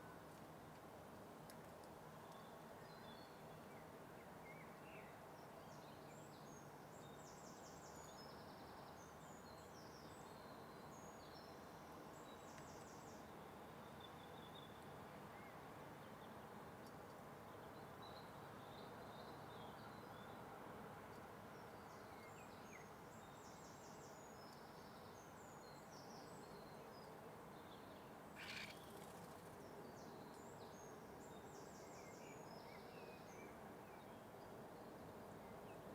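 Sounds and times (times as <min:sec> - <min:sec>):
steady background hiss: 0:00.0 - 0:35.9
small birds chirping and trilling: 0:28.4 - 0:29.7.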